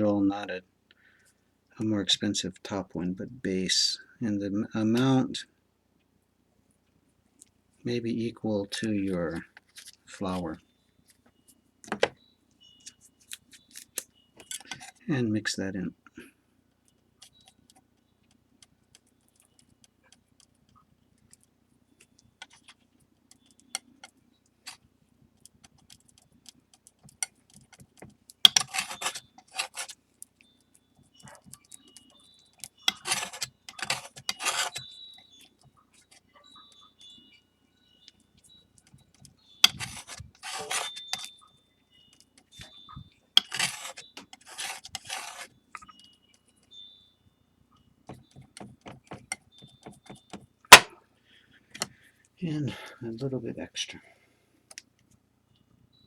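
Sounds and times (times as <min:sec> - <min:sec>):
tool scraping paste on tray: 0:28.5 - 0:30.0, 0:32.9 - 0:34.8, 0:39.7 - 0:41.3, 0:43.4 - 0:45.5.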